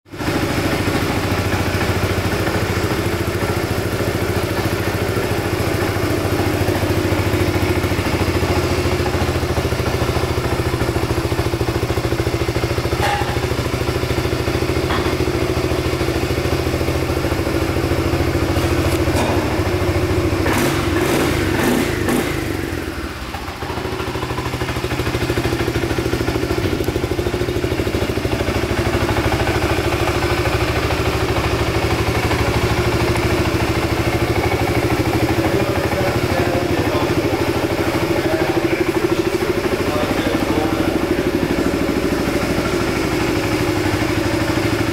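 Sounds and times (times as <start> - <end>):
scooter engine idling: 0.1 - 44.9
sharp knocks: 13.0 - 13.6.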